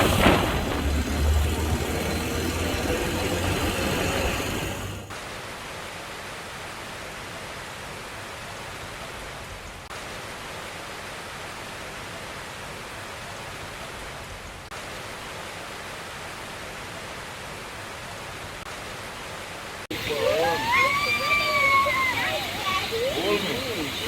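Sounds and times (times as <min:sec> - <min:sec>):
vehicle engine running: 0:00.0 - 0:05.1
rushing water: 0:00.0 - 0:24.0.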